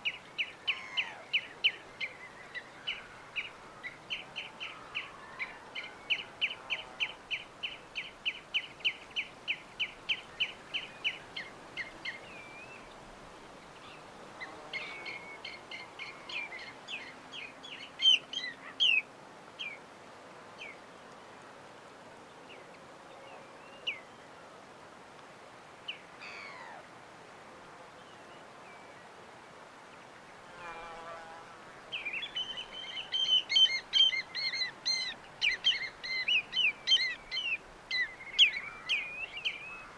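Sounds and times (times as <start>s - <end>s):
small birds chirping: 0.0s - 19.8s, 31.8s - 39.9s
faint steady hiss: 0.0s - 39.9s.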